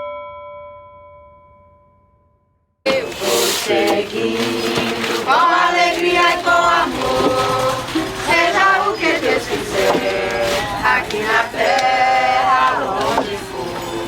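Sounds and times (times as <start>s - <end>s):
group singing a chant: 2.9s - 14.0s.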